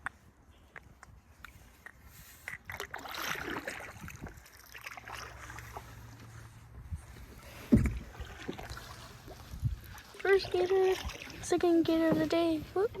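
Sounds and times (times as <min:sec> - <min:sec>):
canoe paddling water swishes: 0:01.2 - 0:12.9
low thump: 0:07.7 - 0:08.1.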